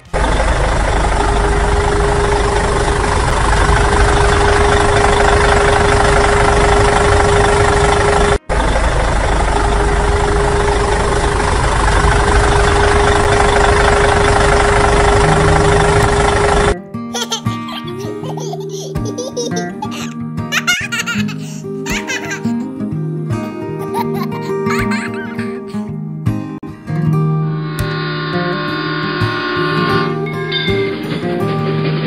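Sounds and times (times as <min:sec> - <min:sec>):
heavy machine engine idling: 0:00.0 - 0:16.8.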